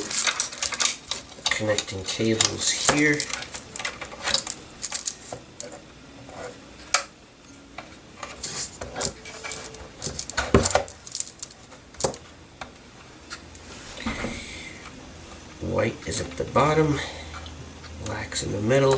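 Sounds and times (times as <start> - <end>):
plastic parts clicking and tapping: 0.0 - 5.8.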